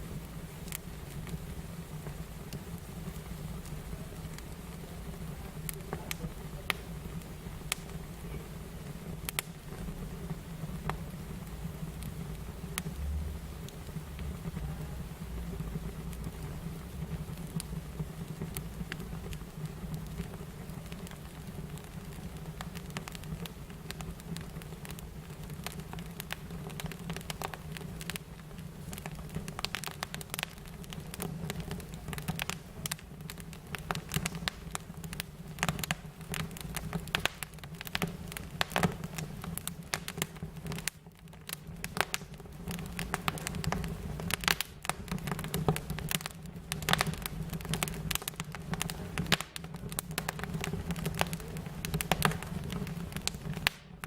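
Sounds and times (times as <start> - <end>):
low steady hum: 0.0 - 24.6
fire crackling and popping: 0.0 - 54.0.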